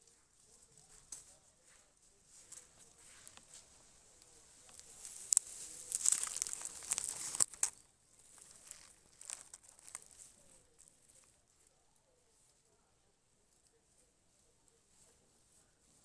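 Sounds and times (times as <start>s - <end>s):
leaves rustling and crackling: 0.0s - 12.7s.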